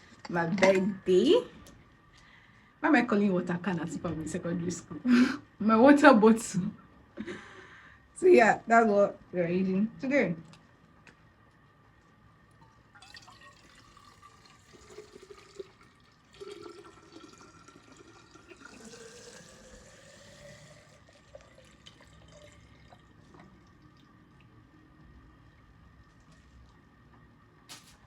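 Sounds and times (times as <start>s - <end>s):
water running into a bottle: 13.0s - 24.0s.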